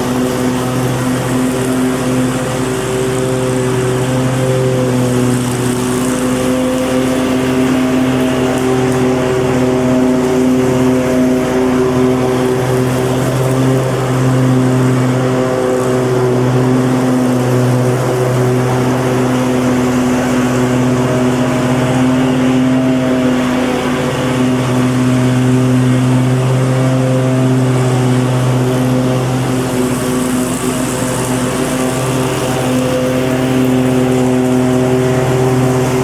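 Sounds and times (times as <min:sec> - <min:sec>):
lawn mower engine running: 0:00.0 - 0:36.0.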